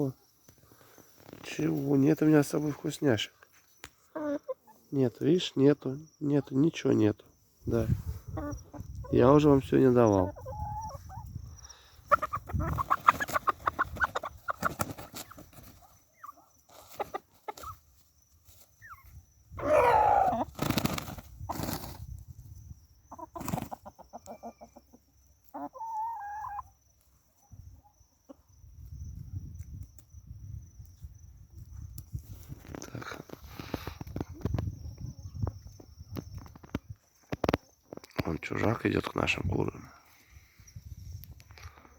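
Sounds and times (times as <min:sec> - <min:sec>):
chickens clucking: 0:03.8 - 0:22.2, 0:22.8 - 0:28.6.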